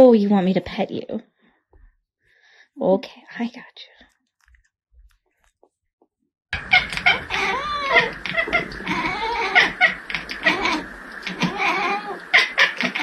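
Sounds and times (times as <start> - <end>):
cat meowing: 6.6 - 13.0.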